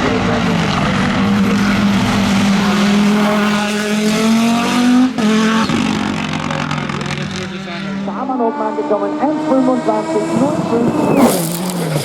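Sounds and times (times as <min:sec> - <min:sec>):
race car engine at high revs: 0:00.0 - 0:12.0.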